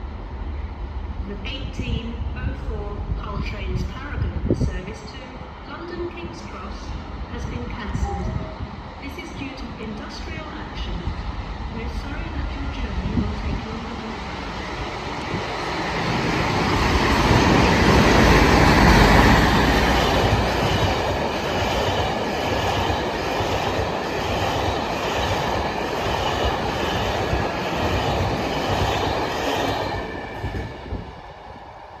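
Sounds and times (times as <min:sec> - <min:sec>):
diesel locomotive passing: 0:06.2 - 0:32.0
train wheels rattling over track: 0:11.8 - 0:31.8.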